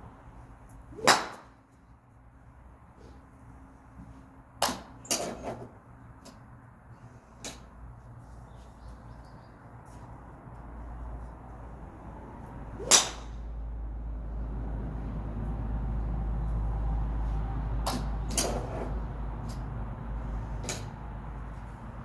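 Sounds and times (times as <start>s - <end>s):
golf club striking ball: 1.0s - 1.5s, 12.8s - 13.4s.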